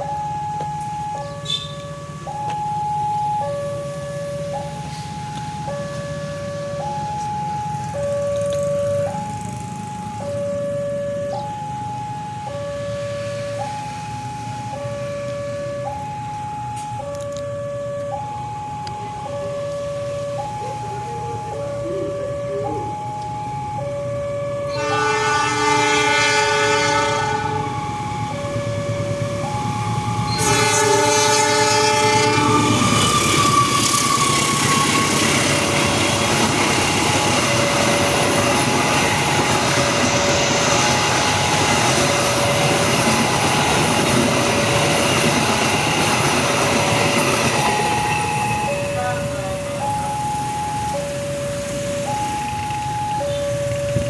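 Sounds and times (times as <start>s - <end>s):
train rumble and wheel clatter: 0.0s - 54.0s
two-tone warning signal: 0.0s - 54.0s
train horn blasts: 1.4s - 1.8s, 24.7s - 27.8s, 30.3s - 35.3s.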